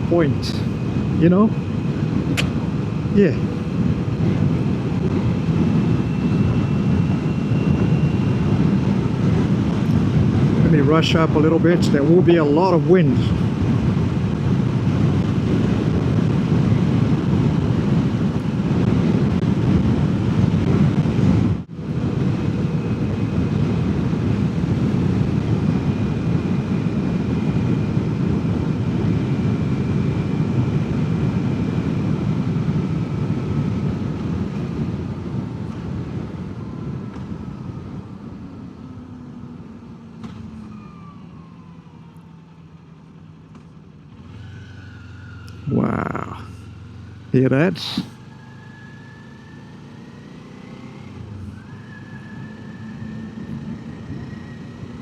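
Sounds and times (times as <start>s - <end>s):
wind rushing over microphone: 0.0s - 43.0s, 49.7s - 55.0s
motorcycle engine whine: 0.0s - 55.0s.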